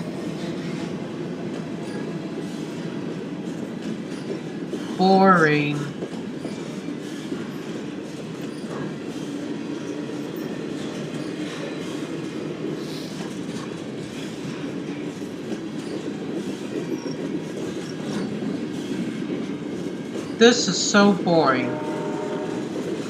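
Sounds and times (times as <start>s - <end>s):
freight train wheels rumbling: 5.9s - 23.0s.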